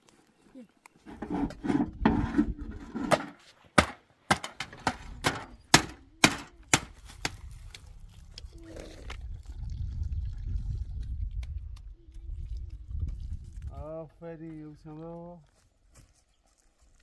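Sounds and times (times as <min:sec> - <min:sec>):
wood chopping blows: 0:03.1 - 0:07.5.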